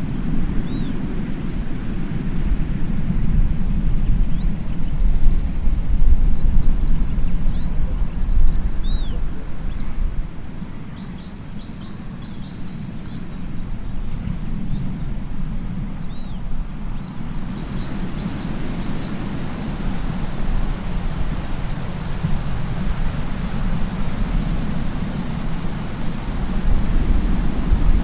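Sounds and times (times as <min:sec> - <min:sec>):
wind buffeting microphone: 0:00.0 - 0:28.0
small birds chirping: 0:16.8 - 0:28.0
steady outdoor rush: 0:17.0 - 0:28.0.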